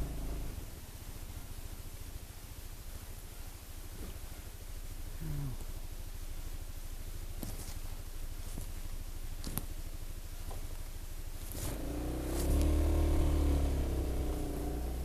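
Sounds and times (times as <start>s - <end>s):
scooter engine idling and revving: 0.0s - 3.2s, 11.4s - 15.0s.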